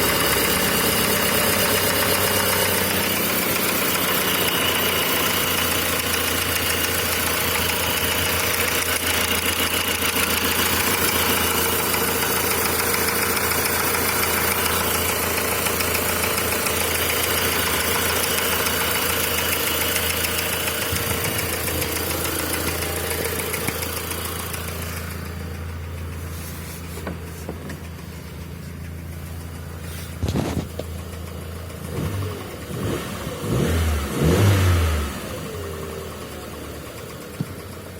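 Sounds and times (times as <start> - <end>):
car engine idling with knock: 0.0 - 32.9, 34.4 - 37.9
thumps: 26.8 - 29.0.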